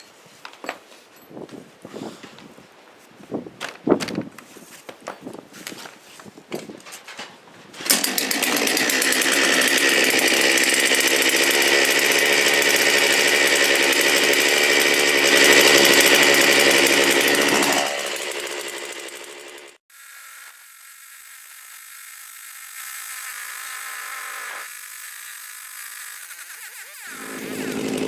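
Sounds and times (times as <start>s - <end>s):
chainsaw running at high revs: 7.8s - 19.8s, 20.6s - 28.0s.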